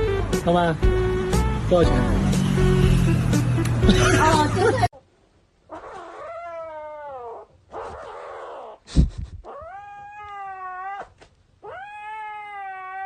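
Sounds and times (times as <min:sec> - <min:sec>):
cat yowling: 0:05.7 - 0:08.8, 0:09.5 - 0:13.0.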